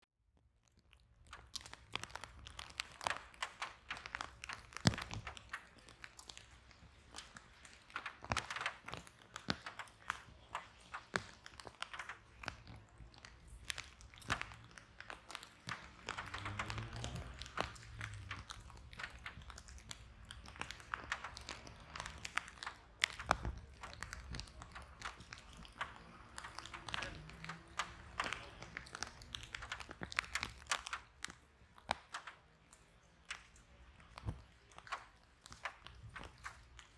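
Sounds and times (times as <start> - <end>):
wood fire crackling: 0.6 - 36.9
low rumble of flames: 9.4 - 31.5.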